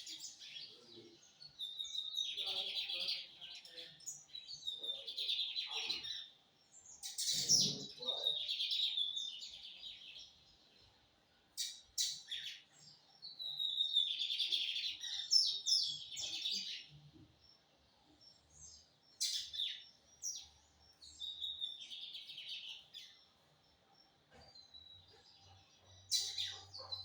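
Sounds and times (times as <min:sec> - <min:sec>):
bird singing high chirps: 0:11.6 - 0:17.3, 0:24.6 - 0:27.0.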